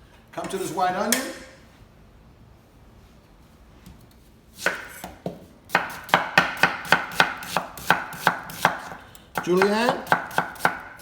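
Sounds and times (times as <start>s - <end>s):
knife chopping onion on board: 4.6s - 11.0s.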